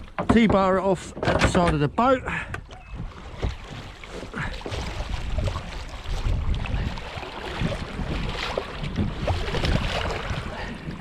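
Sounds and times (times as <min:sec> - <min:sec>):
handling knocks and clatter: 0:00.0 - 0:03.9
wind buffeting microphone: 0:00.0 - 0:11.0.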